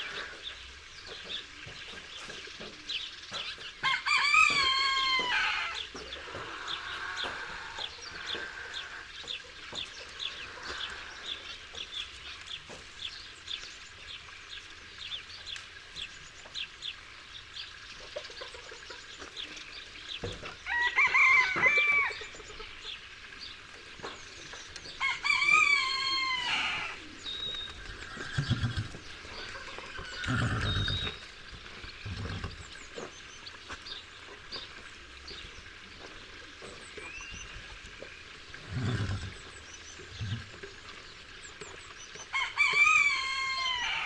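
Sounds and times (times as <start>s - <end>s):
rooster crowing: 3.8s - 5.8s, 20.7s - 22.2s, 25.0s - 27.0s, 42.3s - 44.0s.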